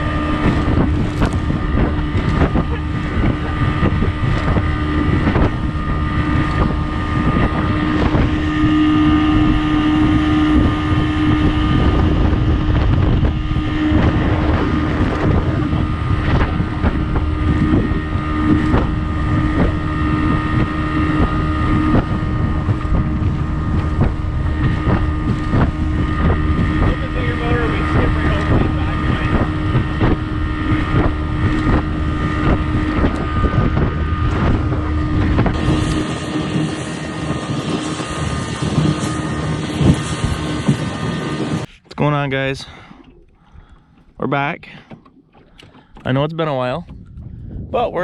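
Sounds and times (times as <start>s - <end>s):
outboard motor running: 0.0s - 48.0s
wind buffeting microphone: 0.0s - 48.0s.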